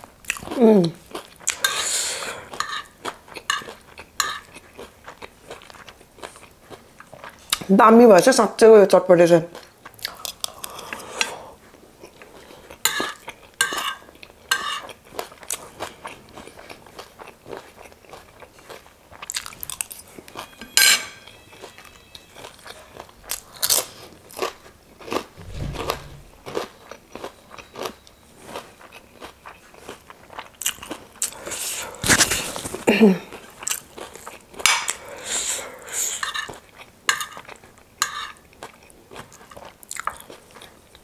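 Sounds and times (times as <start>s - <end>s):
chewing crunchy snack: 0.2s - 1.7s, 2.4s - 7.7s, 9.5s - 20.6s, 22.4s - 25.3s, 26.5s - 35.0s, 36.4s - 41.0s
dull thump: 25.4s - 26.5s.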